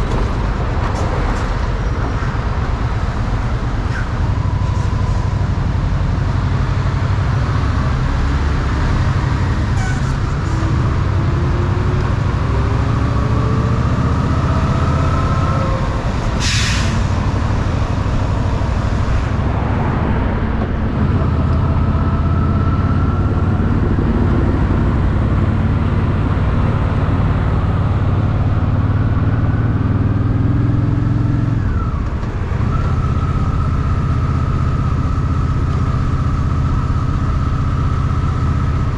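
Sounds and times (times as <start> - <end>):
motorcycle engine accelerating: 19.6 - 38.9.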